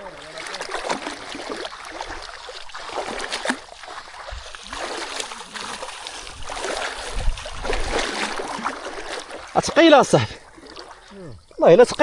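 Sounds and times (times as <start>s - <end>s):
river water splashing: 0.0s - 12.0s.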